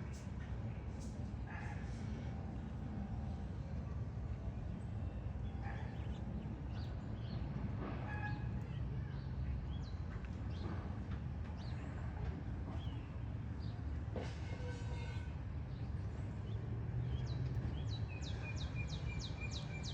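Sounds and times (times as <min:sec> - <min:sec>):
small birds chirping: 0:05.1 - 0:07.6.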